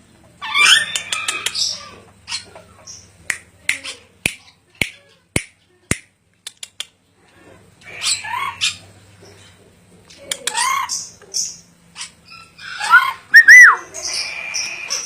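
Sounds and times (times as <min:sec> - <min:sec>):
parrot squawking call: 0:00.4 - 0:02.5, 0:07.9 - 0:08.8, 0:12.0 - 0:15.0.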